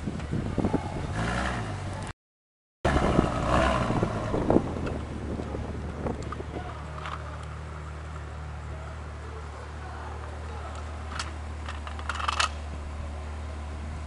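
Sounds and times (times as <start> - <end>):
car engine revving: 2.9 - 14.0.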